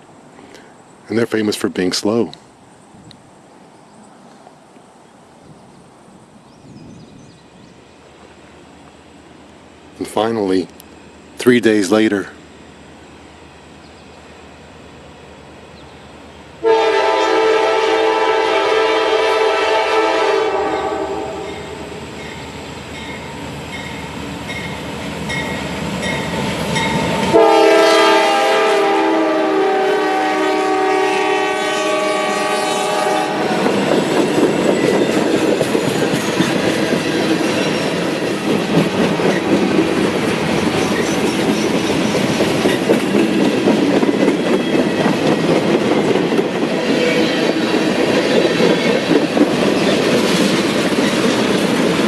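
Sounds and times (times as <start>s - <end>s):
train rumbling by: 0.0s - 52.0s
train horn blast: 16.6s - 22.0s, 27.2s - 33.8s
wheels clicking over rail joints: 33.7s - 46.8s.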